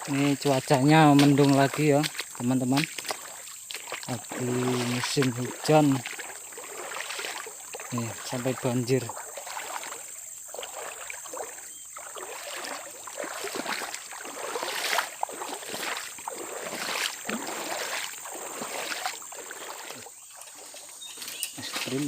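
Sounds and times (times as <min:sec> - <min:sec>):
footsteps wading through water: 0:00.0 - 0:22.0.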